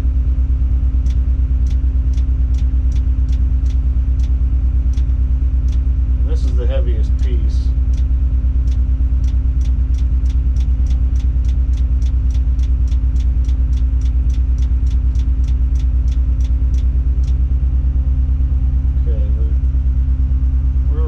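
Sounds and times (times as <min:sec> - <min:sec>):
diesel engine running: 0:00.0 - 0:21.0
rapid even ticking: 0:00.8 - 0:17.6.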